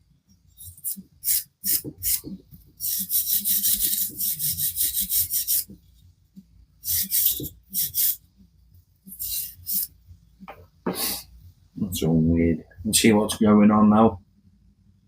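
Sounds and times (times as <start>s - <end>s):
wire brush scrubbing metal: 0.6s - 5.7s.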